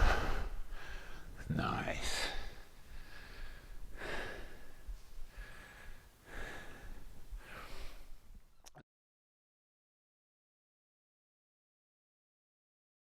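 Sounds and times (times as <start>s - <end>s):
person breathing hard: 0.0s - 1.4s, 2.0s - 8.3s.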